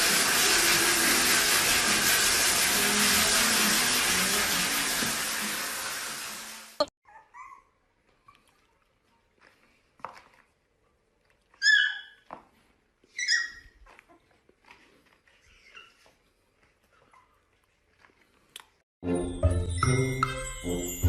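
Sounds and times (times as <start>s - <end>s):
loud hiss: 0.0s - 6.8s
puppy yelping and whining: 7.0s - 8.4s, 11.5s - 12.3s, 13.0s - 14.4s, 15.3s - 17.6s.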